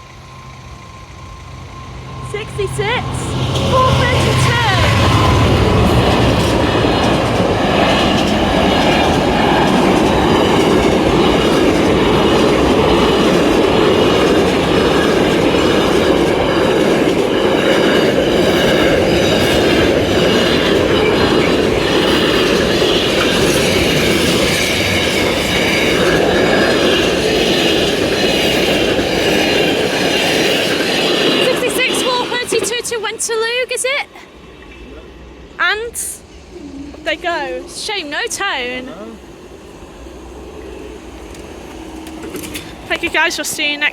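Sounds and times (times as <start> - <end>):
freight train rumbling past: 0.0 - 43.9
wheels clacking over rail joints: 3.4 - 33.0, 41.2 - 43.9.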